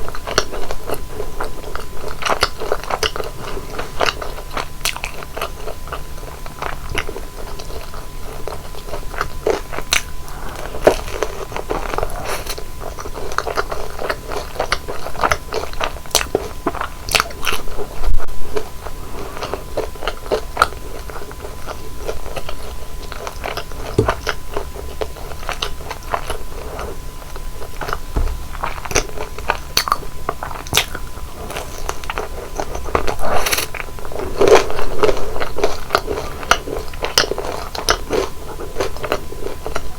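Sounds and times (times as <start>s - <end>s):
wet chewing: 0.1s - 39.9s
crunchy biting of fried food: 18.6s - 39.8s.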